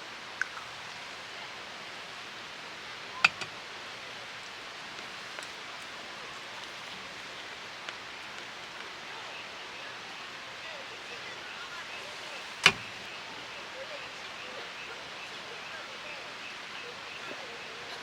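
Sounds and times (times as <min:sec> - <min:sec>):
sharp clicks: 0:03.3 - 0:03.5, 0:12.6 - 0:13.1.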